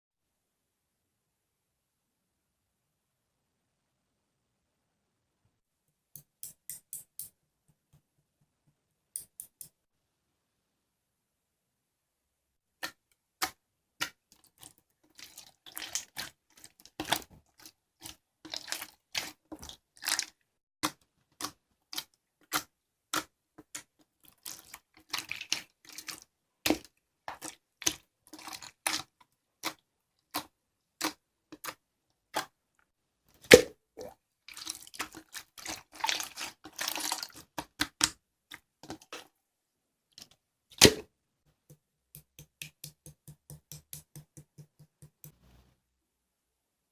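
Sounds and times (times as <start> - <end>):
squishy slime crackling: 34.5 - 38.2.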